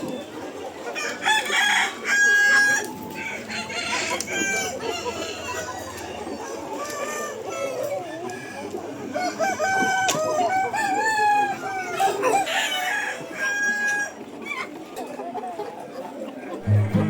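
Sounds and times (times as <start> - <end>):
hens clucking: 0.0 - 17.0
roosters crowing: 1.0 - 14.2.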